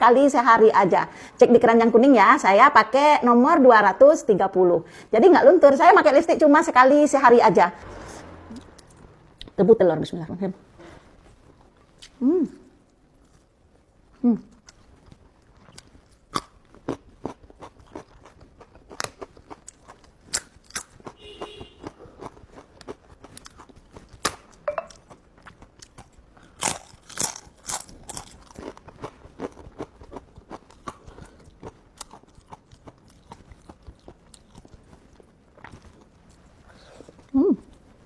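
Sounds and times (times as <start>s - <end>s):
person chewing and biting: 14.6s - 37.8s.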